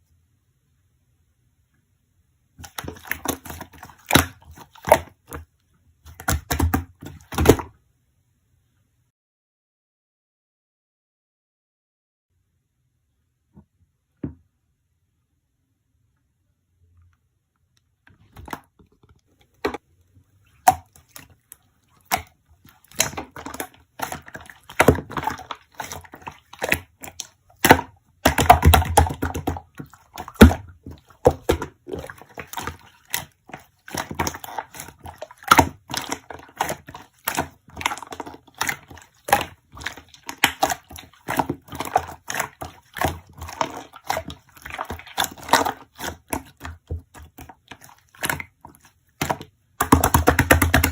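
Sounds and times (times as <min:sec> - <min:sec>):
slime squeezed by hand: 0:22.0 - 0:50.9.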